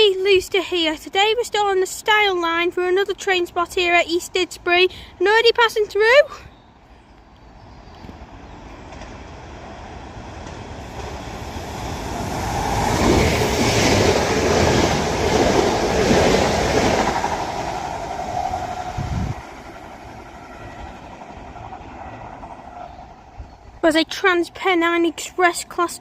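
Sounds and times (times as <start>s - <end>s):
train passing at speed: 7.5s - 25.2s.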